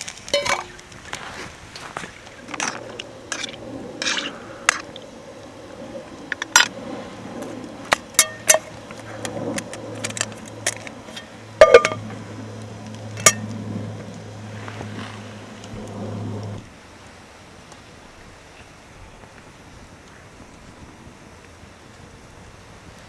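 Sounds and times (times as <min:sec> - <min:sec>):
metal and glass clinks: 0:00.3 - 0:00.8, 0:11.1 - 0:12.0.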